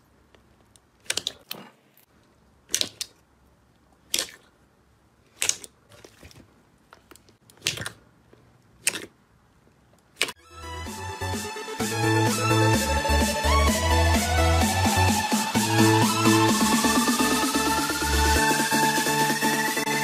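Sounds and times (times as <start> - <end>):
slime squelching: 0.0 - 10.4.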